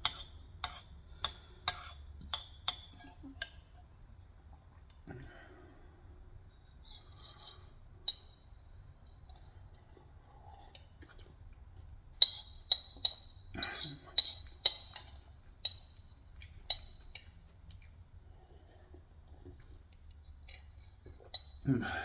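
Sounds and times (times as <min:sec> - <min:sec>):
spoon clinking against bowl: 0:00.0 - 0:03.7, 0:07.3 - 0:08.5, 0:12.2 - 0:16.0, 0:16.7 - 0:17.3, 0:21.3 - 0:21.6.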